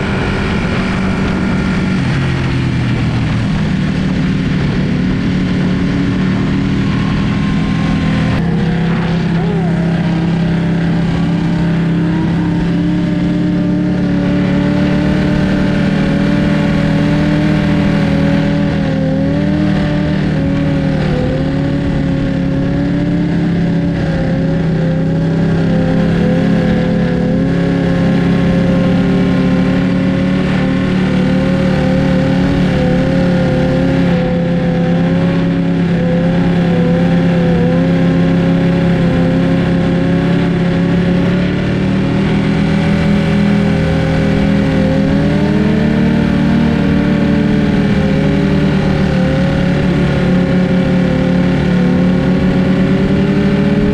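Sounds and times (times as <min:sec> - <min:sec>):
motorcycle engine cruising: 0:00.0 - 0:53.9
rushing wind noise: 0:00.0 - 0:53.9.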